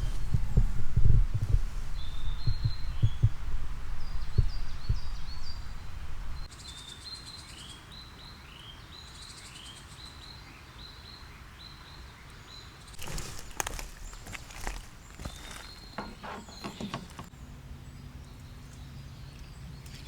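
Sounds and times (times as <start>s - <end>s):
low rumble with dull thumps: 0.0s - 6.5s
songbird calling: 0.0s - 19.6s.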